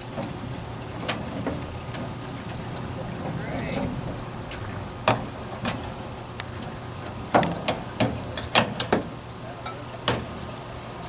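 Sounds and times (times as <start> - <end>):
boat engine hum: 0.0 - 8.6.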